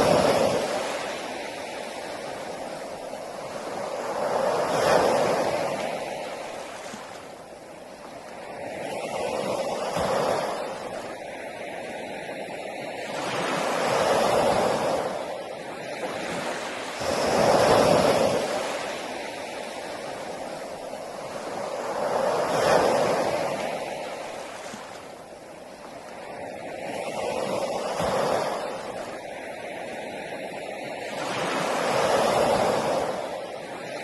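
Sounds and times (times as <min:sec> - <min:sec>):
ocean waves breaking on beach: 0:00.0 - 0:34.0.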